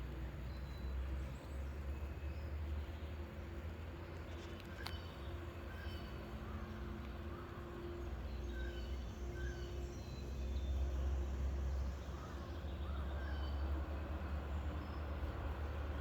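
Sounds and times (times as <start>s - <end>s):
traffic engines rumbling: 0.0s - 16.0s
small birds chirping: 4.2s - 7.7s.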